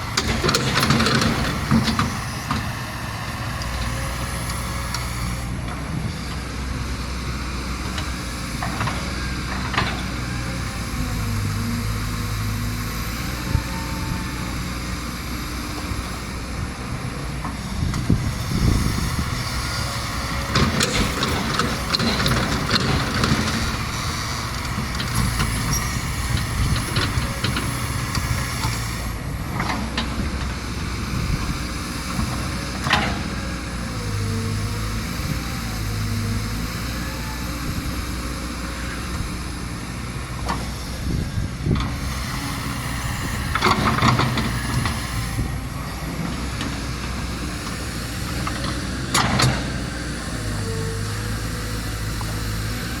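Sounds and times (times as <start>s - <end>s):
rumbling and clattering: 0.0s - 6.0s, 16.9s - 36.2s
excavator diesel engine running: 0.0s - 53.0s
hydraulic whine: 0.0s - 53.0s.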